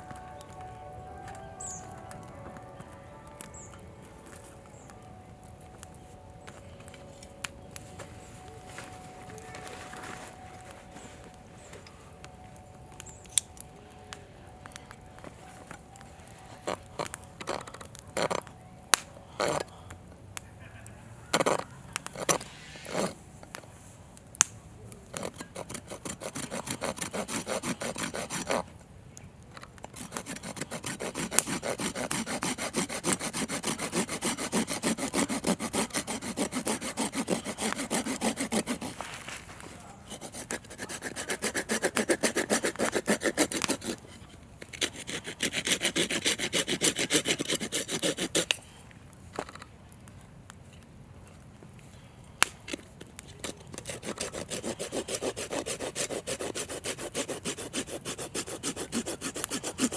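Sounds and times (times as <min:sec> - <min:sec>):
hand saw cutting wood: 0:21.4 - 0:23.2, 0:25.1 - 0:28.6, 0:29.9 - 0:48.6, 0:53.4 - 0:59.9.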